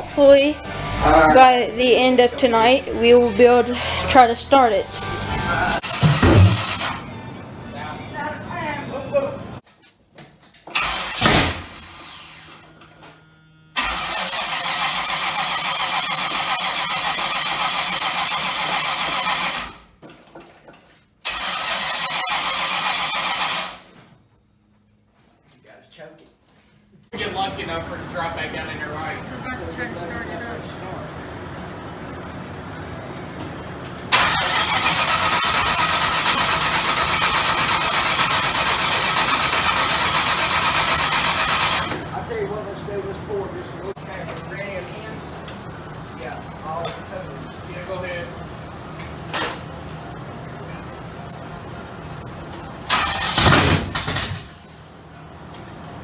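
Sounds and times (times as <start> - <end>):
short loud burst: 5.8 - 7.1
car engine cranking on starter: 5.8 - 8.8, 10.7 - 12.7, 13.8 - 19.9, 21.2 - 24.0, 34.1 - 42.1, 52.9 - 54.7.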